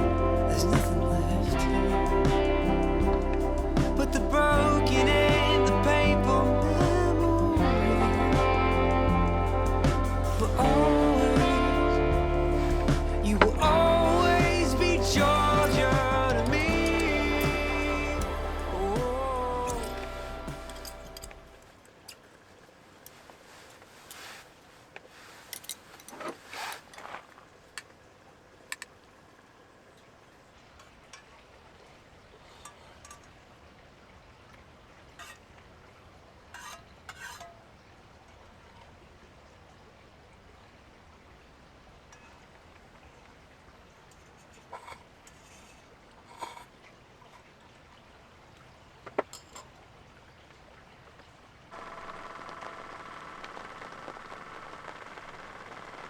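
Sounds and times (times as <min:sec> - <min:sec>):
handling noise: 0:00.0 - 0:21.8, 0:22.8 - 0:27.9, 0:51.7 - 0:56.0
faint steady hiss: 0:00.0 - 0:56.0
faint hiss: 0:06.8 - 0:27.8, 0:51.7 - 0:56.0
light clicks and clinks: 0:25.0 - 0:27.1, 0:49.1 - 0:49.8
campfire crackling and popping: 0:51.8 - 0:56.0.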